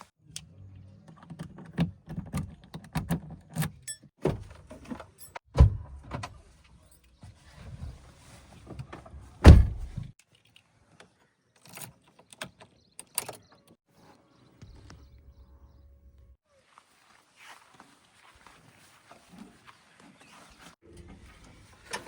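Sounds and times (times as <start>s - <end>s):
knocks and clunks: 8.7s - 10.1s
heavy thud: 9.4s - 10.1s
backhoe engine rumble: 19.2s - 22.0s.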